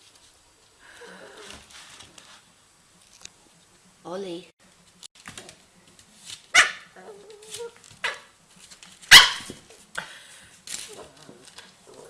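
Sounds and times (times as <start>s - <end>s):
puppy yapping: 6.5s - 8.3s, 9.1s - 9.6s.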